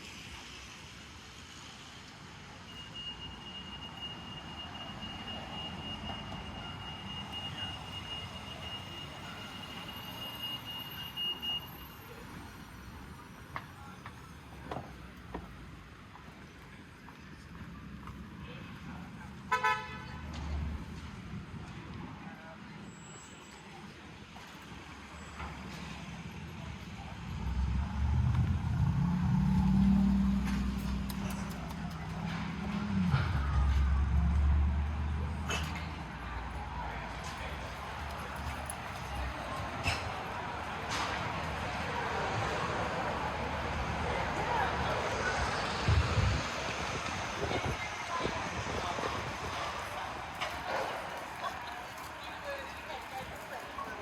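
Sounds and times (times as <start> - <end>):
traffic rumble: 0.0 - 54.0
vehicle engine passing: 25.9 - 52.4.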